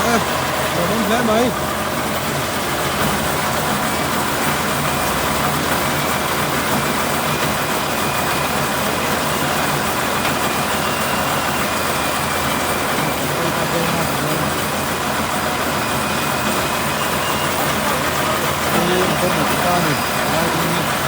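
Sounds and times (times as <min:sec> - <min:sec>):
truck engine droning: 0:00.0 - 0:21.0.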